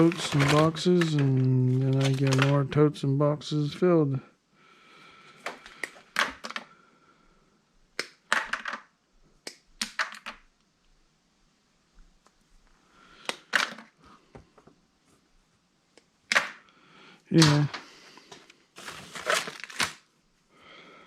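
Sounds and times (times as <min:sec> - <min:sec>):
metal parts clattering: 0:00.0 - 0:02.5.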